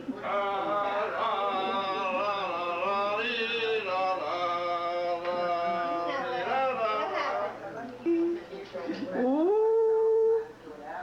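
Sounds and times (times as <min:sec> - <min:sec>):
long drawn-out vocal notes: 0:00.0 - 0:07.2.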